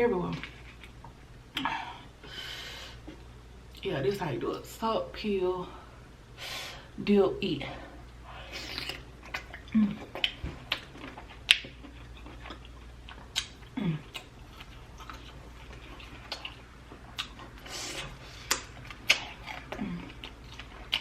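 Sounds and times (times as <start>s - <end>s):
wet eating and chewing sounds: 8.0s - 21.0s.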